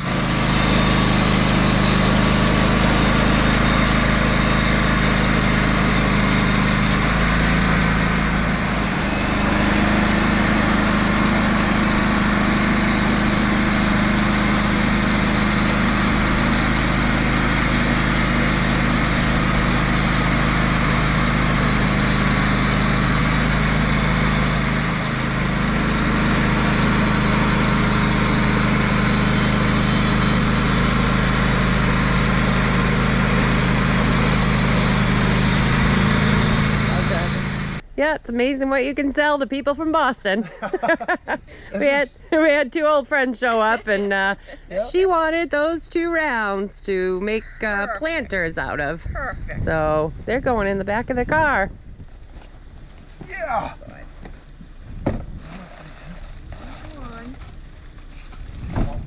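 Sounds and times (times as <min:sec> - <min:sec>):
engine running loudly: 0:00.0 - 0:37.9.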